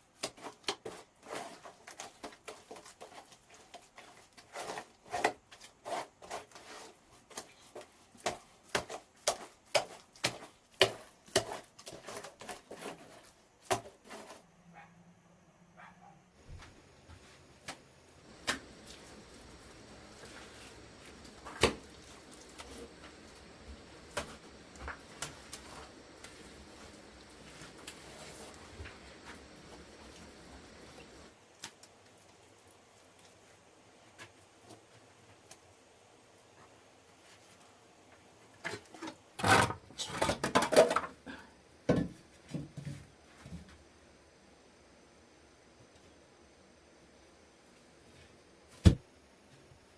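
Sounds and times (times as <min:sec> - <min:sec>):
faint steady background noise: 0:00.0 - 0:49.9
scraping strokes: 0:00.3 - 0:14.4.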